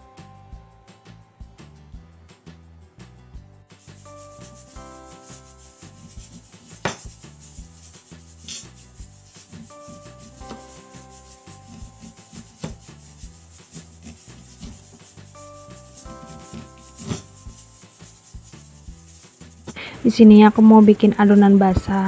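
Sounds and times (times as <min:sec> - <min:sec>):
knife slicing onion: 0:03.9 - 0:19.8.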